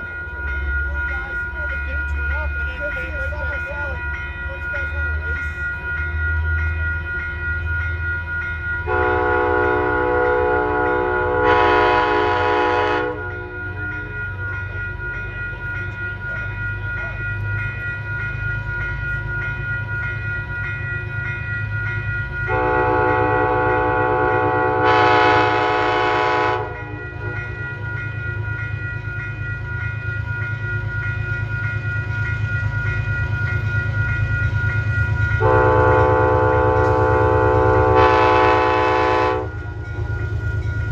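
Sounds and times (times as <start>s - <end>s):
diesel locomotive rumble: 0.0s - 40.9s
locomotive air horn blasts: 8.9s - 13.3s, 22.5s - 26.8s, 35.4s - 39.6s.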